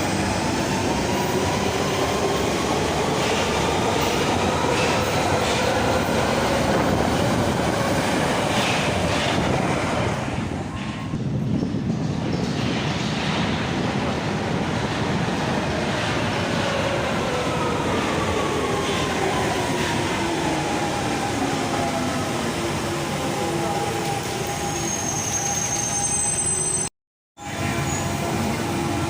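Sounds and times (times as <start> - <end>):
train wheels rumbling on rail: 0.0 - 22.3.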